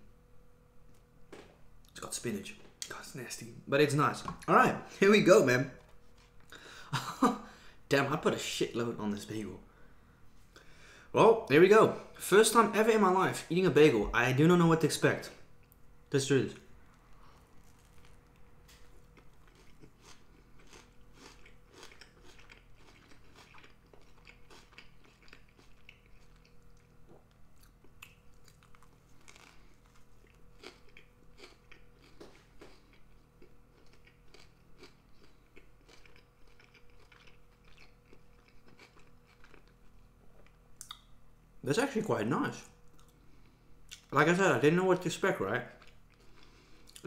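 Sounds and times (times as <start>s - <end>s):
faint close-up chewing: 16.9s - 41.1s, 45.7s - 47.0s.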